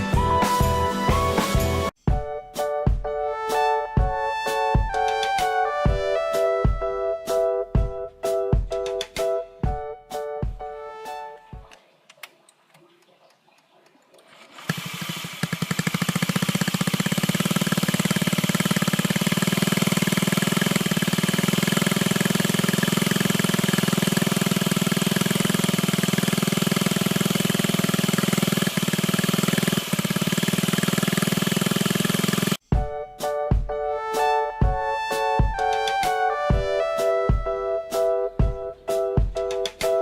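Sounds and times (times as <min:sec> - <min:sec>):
scooter engine idling: 0:14.5 - 0:32.6.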